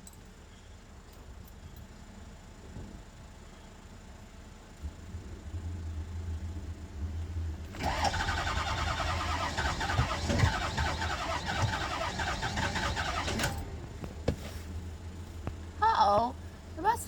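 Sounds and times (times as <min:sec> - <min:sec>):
diesel engine cranking: 0:07.6 - 0:15.2.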